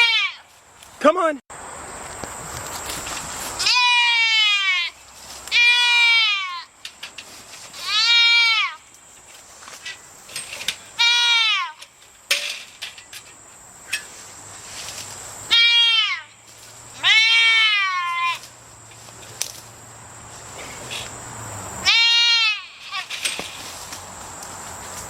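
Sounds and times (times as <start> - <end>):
goat bleating: 0.0 - 0.5, 3.6 - 6.7, 7.8 - 8.8, 15.5 - 16.3, 17.0 - 18.5, 21.8 - 23.1.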